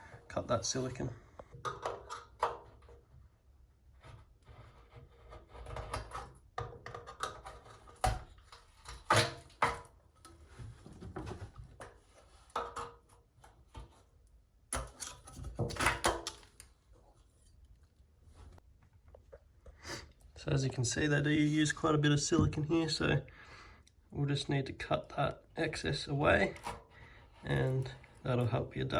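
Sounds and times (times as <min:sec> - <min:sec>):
knife scraping sealant: 0:04.0 - 0:06.4.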